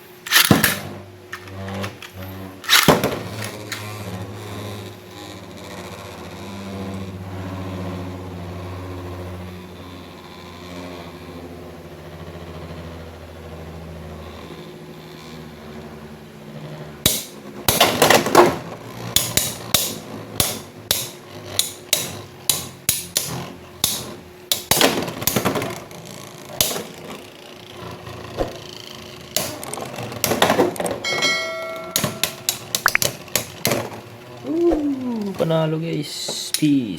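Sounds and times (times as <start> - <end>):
spinning tops clacking together: 0.2 - 0.8, 31.1 - 33.1.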